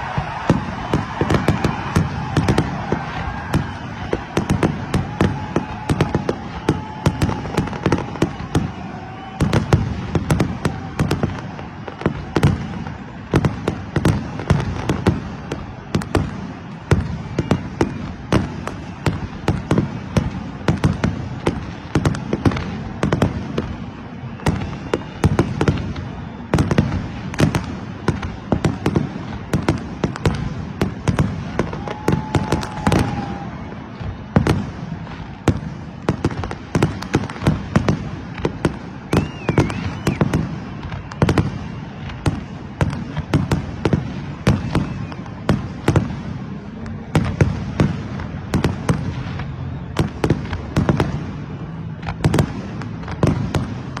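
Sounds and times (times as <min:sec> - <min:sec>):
fireworks cracking and banging: 0:00.0 - 0:54.0
steady whistle: 0:17.3 - 0:19.5, 0:23.7 - 0:26.9, 0:39.0 - 0:42.6, 0:44.4 - 0:45.5.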